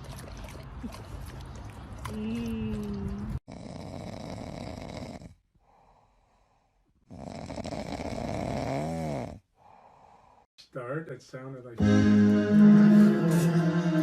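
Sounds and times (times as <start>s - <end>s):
pet snoring: 3.5s - 5.4s, 7.0s - 9.4s.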